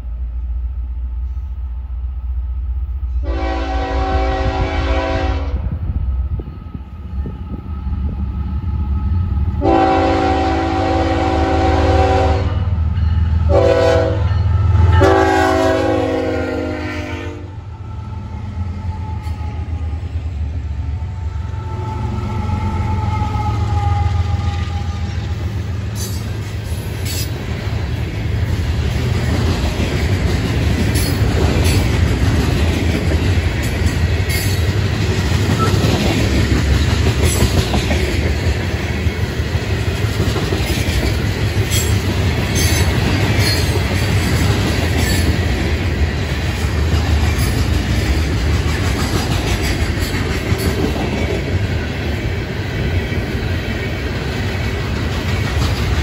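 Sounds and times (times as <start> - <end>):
train wheels rumbling on rail: 0.0 - 56.0
wheels clacking over rail joints: 28.9 - 51.7, 54.2 - 56.0.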